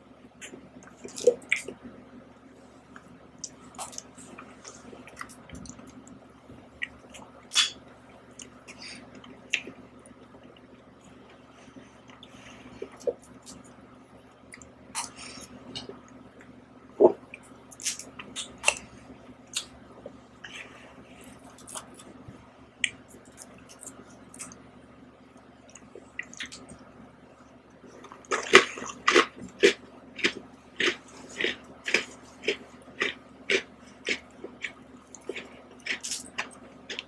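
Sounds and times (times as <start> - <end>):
smacking chews: 28.0 - 37.0.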